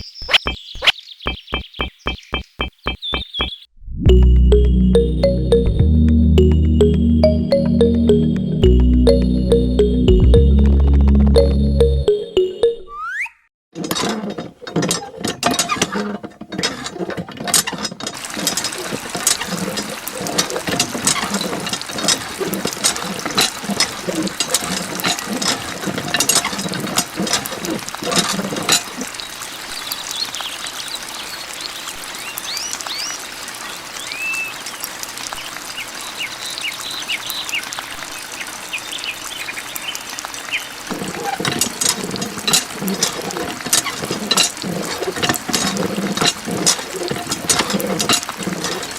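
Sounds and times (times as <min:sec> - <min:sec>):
water pouring and trickling: 0:04.1 - 0:12.5, 0:13.8 - 0:48.9
small clicks and high plinks: 0:04.1 - 0:12.9.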